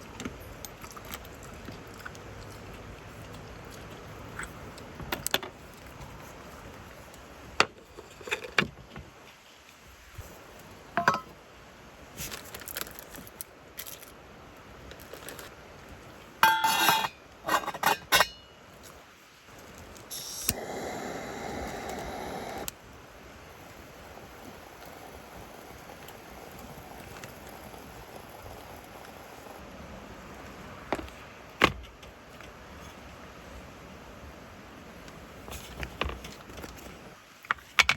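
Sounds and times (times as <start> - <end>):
dishes and cookware clinking: 11.0 - 11.3, 16.4 - 18.5
steady hiss: 19.5 - 30.6.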